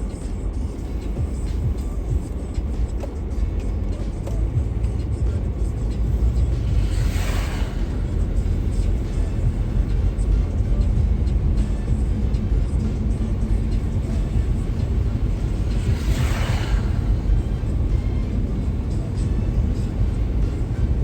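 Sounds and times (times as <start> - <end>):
road traffic rumble: 0.0 - 21.0
tyres hissing past: 6.6 - 10.7, 13.2 - 19.3.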